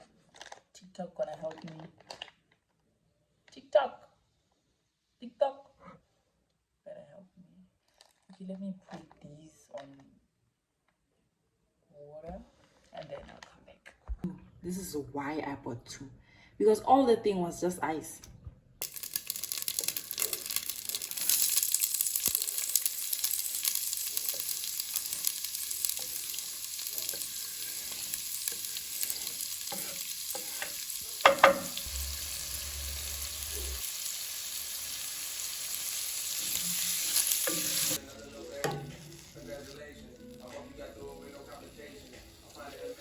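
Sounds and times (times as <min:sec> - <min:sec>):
food sizzling in a pan: 0:18.8 - 0:43.0
utensil clacking against pan: 0:22.3 - 0:31.9.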